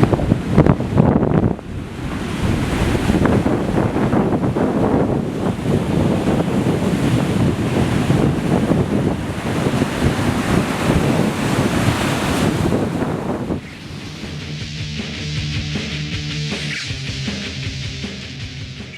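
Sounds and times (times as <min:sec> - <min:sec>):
wind buffeting microphone: 0:00.0 - 0:16.3
surf breaking on beach: 0:00.0 - 0:17.6
rock music: 0:13.7 - 0:18.9.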